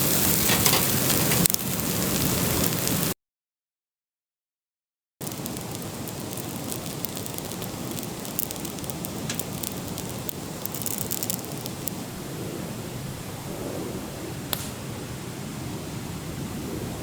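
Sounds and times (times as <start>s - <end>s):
campfire crackling and popping: 0.0s - 3.2s, 5.2s - 12.0s.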